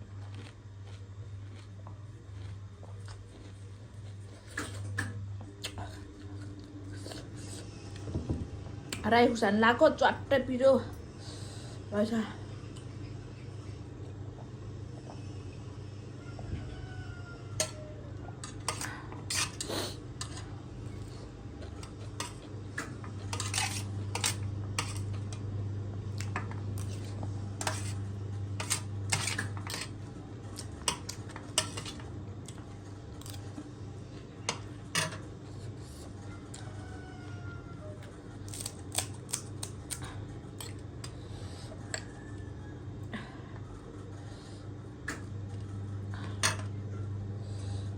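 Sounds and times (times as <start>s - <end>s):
steady low hum: 0.0s - 47.9s
cutlery clinking against dish: 22.2s - 25.1s, 30.9s - 32.0s.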